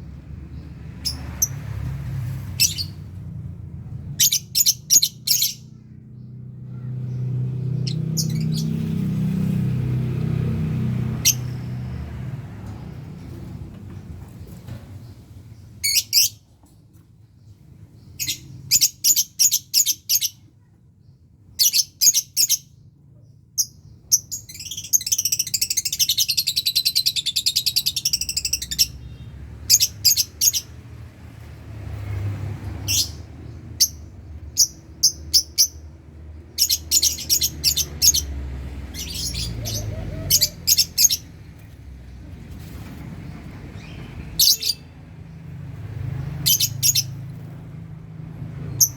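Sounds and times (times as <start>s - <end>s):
high chattering of birds: 0.0s - 3.2s, 3.8s - 16.4s, 17.4s - 31.4s, 32.7s - 48.9s
lovebirds chirping shrilly: 2.4s - 3.1s, 4.1s - 5.9s, 6.7s - 9.0s, 15.8s - 16.4s, 23.6s - 30.8s, 32.8s - 35.8s, 36.5s - 41.7s, 43.7s - 45.0s, 46.1s - 47.4s.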